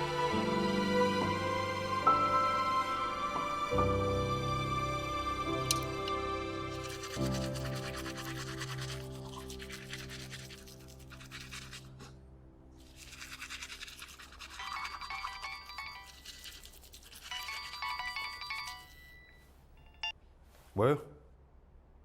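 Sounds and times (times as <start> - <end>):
soft background music: 0.0 - 20.2
mobile phone ringtone: 14.6 - 16.2, 17.3 - 20.1.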